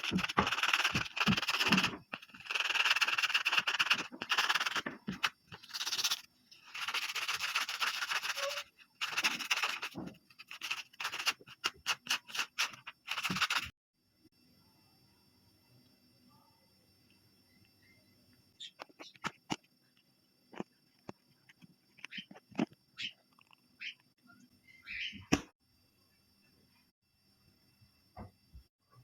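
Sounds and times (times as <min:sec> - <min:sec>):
hands rubbing slime: 0:00.0 - 0:06.2, 0:06.8 - 0:13.7.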